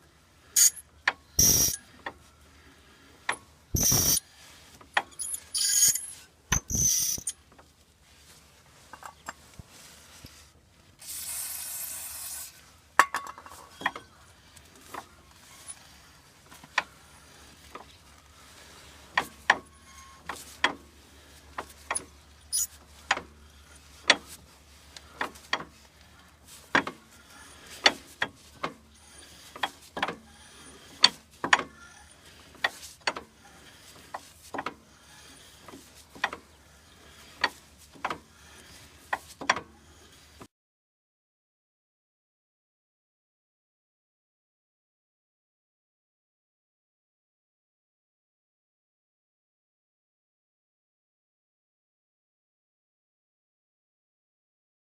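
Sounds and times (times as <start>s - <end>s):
short hiss: 1.4s - 1.8s, 3.8s - 4.2s, 5.6s - 7.3s, 11.0s - 12.6s.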